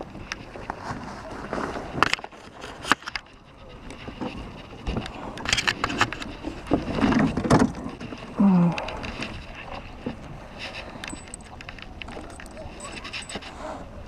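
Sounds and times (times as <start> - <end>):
irregular scrapes and knocks: 0.2 - 13.8.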